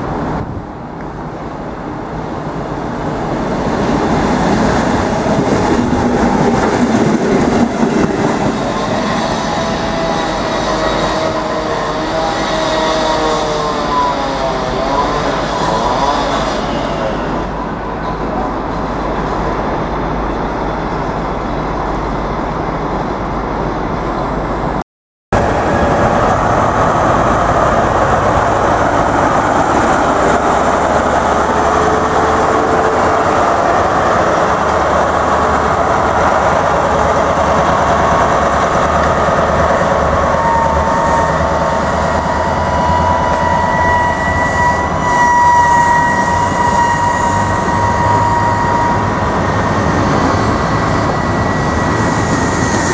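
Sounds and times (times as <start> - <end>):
diesel train passing: 0.0 - 24.8, 25.4 - 52.9
rail vehicle running on track: 0.0 - 24.8, 25.4 - 52.9
coaches rolling over rails: 25.4 - 52.9
steady high tone: 25.4 - 52.9.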